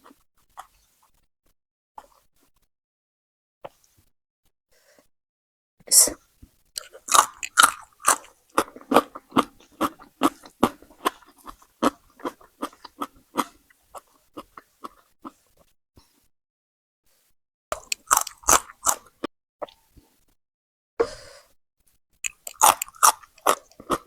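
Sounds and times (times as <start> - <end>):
person chewing crunchy food: 6.8 - 15.6, 17.7 - 19.9, 22.2 - 24.0.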